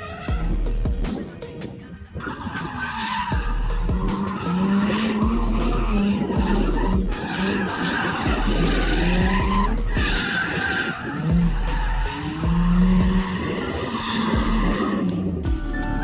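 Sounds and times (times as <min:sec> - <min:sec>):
music with steady beat: 0:00.0 - 0:16.0
tires squealing: 0:00.0 - 0:16.0
car engine running: 0:03.2 - 0:16.0.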